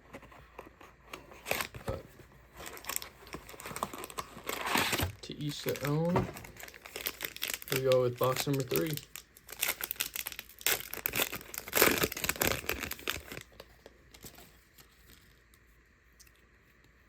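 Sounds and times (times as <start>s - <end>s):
plastic wrapping tearing: 2.6s - 14.8s.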